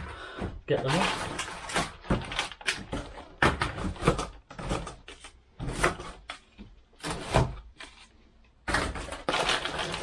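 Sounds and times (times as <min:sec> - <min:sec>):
cardboard scrapes and knocks: 0:00.9 - 0:06.3, 0:07.0 - 0:08.1.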